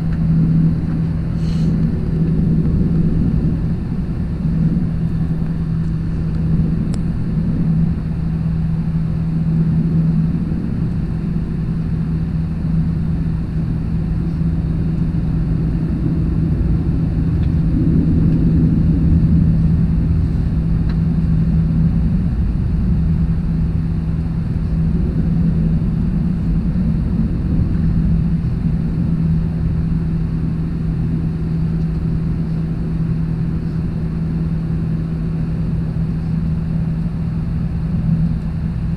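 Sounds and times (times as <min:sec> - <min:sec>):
jet engines droning in cabin: 0:00.0 - 0:38.9
air rushing: 0:01.1 - 0:04.2.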